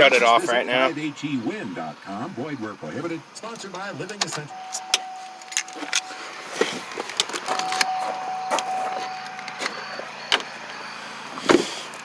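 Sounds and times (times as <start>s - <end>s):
steady electronic tone: 4.5s - 10.9s.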